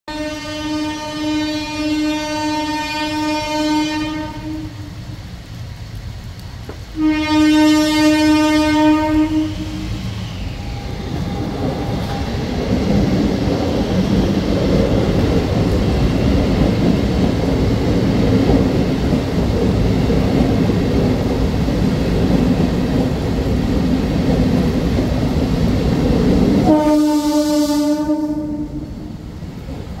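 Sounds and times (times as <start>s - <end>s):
train horn blast: 0.1s - 5.0s, 6.9s - 12.3s, 26.6s - 29.1s
train wheels rumbling on rails: 0.1s - 30.0s.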